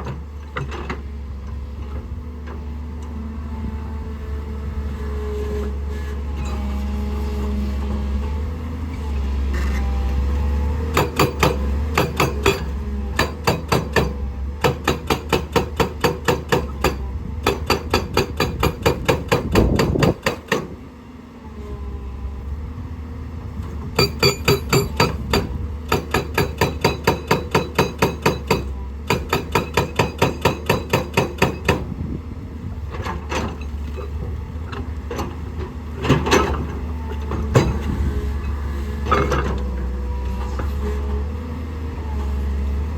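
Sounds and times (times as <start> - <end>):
hydraulic rock breaker hammering: 10.8 - 20.9, 23.8 - 32.1, 35.0 - 38.0
diesel engine hum: 17.0 - 29.8, 31.6 - 42.9.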